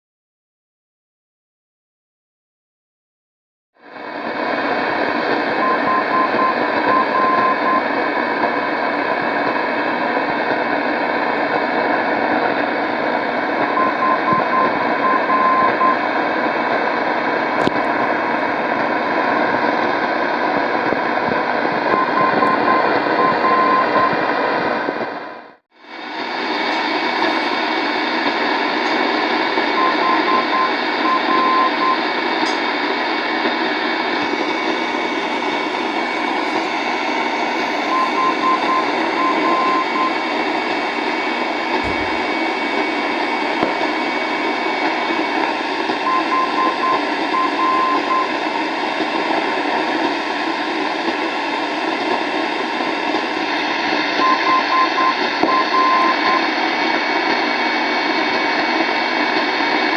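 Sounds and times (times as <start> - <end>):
radio static hiss: 4.0 - 25.3, 26.0 - 59.9
high beeps: 37.9 - 40.2, 46.1 - 48.3.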